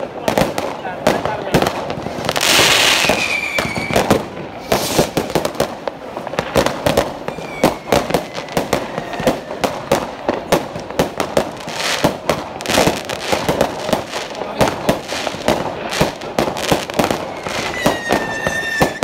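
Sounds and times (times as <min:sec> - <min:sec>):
firework crackle: 0:00.0 - 0:19.0
fireworks bangs and pops: 0:00.0 - 0:19.0
falling firework whistles: 0:02.5 - 0:05.3, 0:07.1 - 0:09.9, 0:17.0 - 0:19.0.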